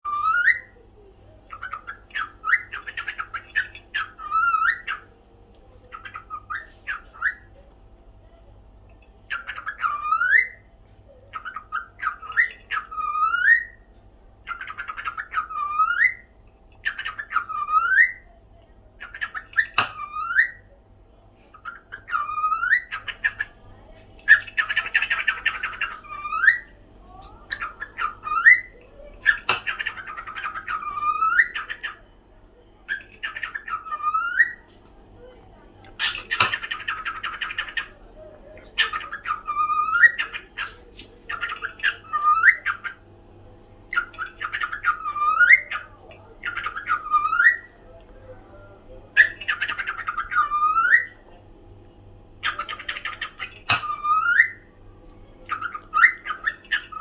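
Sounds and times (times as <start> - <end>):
cockatiel calling: 9.3 - 10.6, 11.3 - 13.8, 14.5 - 18.3, 21.6 - 23.5, 27.5 - 32.0, 32.9 - 34.6, 43.9 - 47.7, 49.2 - 51.2, 52.4 - 54.6.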